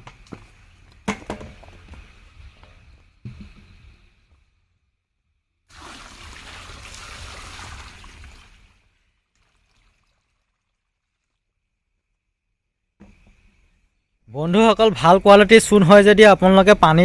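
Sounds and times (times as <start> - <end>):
water pouring into clay basin: 5.7 - 12.1.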